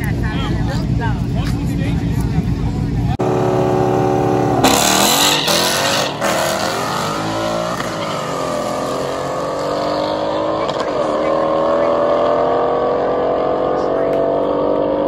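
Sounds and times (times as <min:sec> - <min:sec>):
car engine revving: 0:00.1 - 0:15.0.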